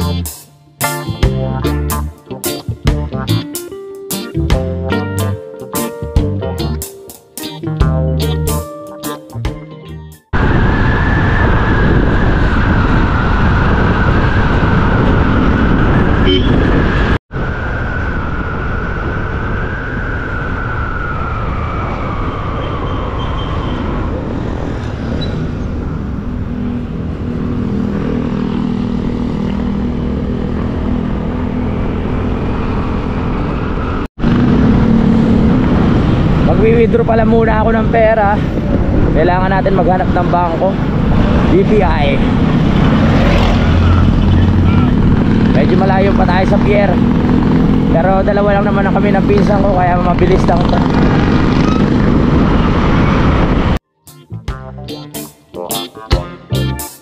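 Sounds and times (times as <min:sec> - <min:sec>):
guitar music: 0:00.0 - 0:10.3, 0:53.9 - 0:57.0
wind rush on microphone: 0:10.3 - 0:53.8
motorcycle engine: 0:25.6 - 0:36.5, 0:40.8 - 0:53.8.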